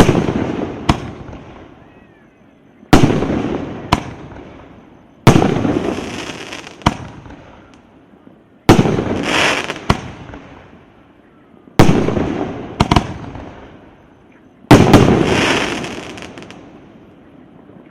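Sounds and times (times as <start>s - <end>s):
firework crack: 0.0s - 1.7s, 2.9s - 7.9s, 8.6s - 10.8s, 11.8s - 13.9s, 14.7s - 16.9s
firework bursts echoing: 0.0s - 1.8s, 2.9s - 7.8s, 8.6s - 10.8s, 11.8s - 14.0s, 14.7s - 17.0s.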